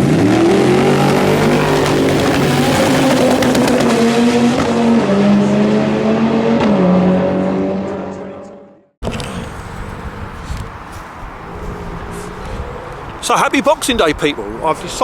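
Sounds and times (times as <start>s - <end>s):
sharp exhaust crackles: 0.0s - 4.9s
car engine revving hard: 0.0s - 8.4s.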